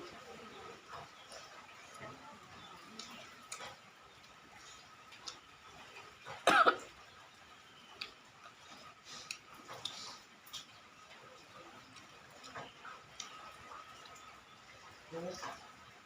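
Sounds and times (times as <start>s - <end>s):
faint eating clicks: 0.0s - 16.0s
person coughing: 6.5s - 6.9s.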